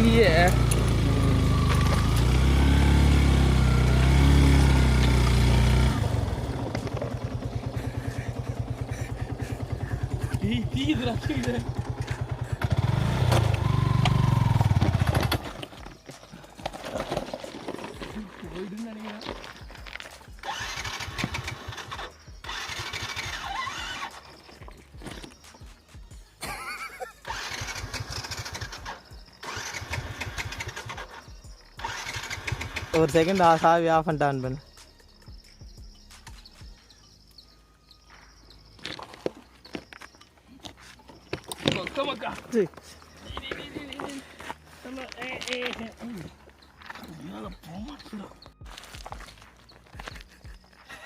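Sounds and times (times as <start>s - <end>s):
motorcycle engine idling: 0.0s - 16.6s, 27.2s - 33.7s.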